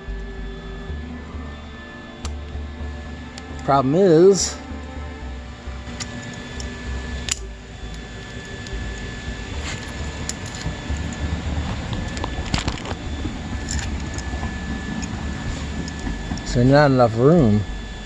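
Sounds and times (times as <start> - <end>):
steady background hum: 0.0 - 18.0
metal parts clicking and clinking: 5.8 - 16.6.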